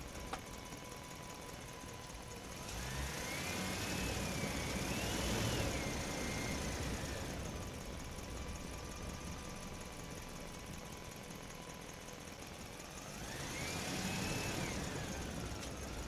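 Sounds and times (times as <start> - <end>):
engine revving: 2.4 - 7.7, 12.9 - 16.0.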